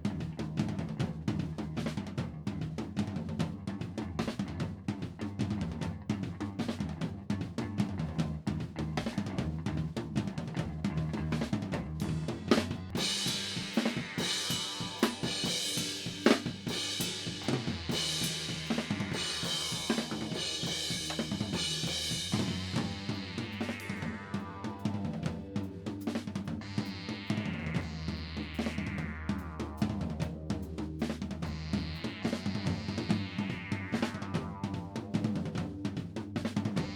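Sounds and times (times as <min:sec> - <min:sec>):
bass notes: 0:00.0 - 0:36.9
drum kit beat: 0:00.0 - 0:36.9
crashing cymbals: 0:13.0 - 0:23.0.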